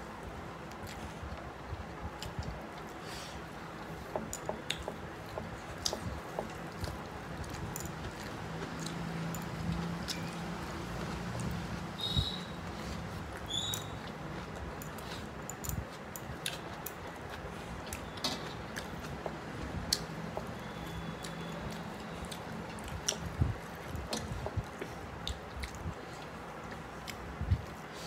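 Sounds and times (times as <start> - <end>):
chewing and wet mouth clicks: 4.3 - 11.8, 13.2 - 19.2, 19.9 - 27.8.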